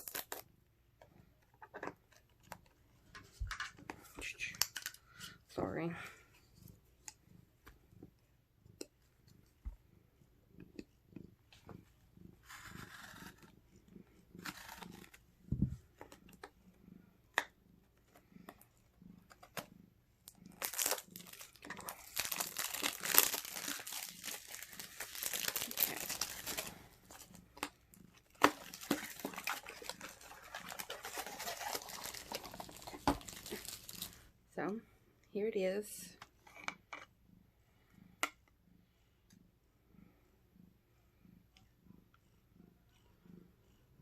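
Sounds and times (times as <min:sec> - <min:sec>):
plastic and paper crinkling: 0:20.5 - 0:27.3, 0:28.3 - 0:34.2.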